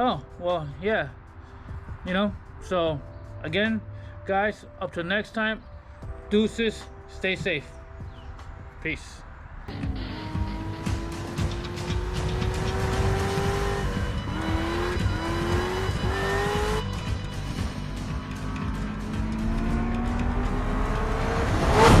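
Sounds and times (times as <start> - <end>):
car engine accelerating hard: 9.7 - 22.0.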